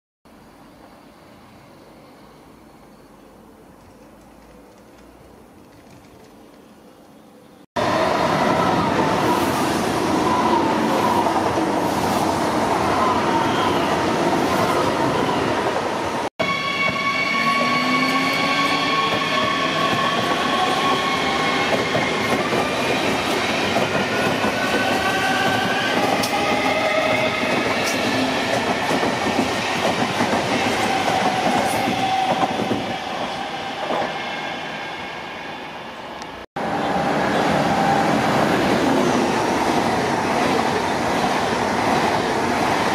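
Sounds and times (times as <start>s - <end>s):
high-speed train rushing past: 7.8s - 42.9s
electric train drives whining: 16.4s - 34.2s.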